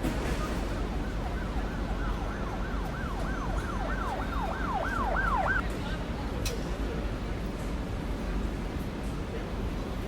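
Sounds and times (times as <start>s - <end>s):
low rumble of street noise: 0.0s - 10.0s
emergency siren yelping: 0.2s - 5.6s.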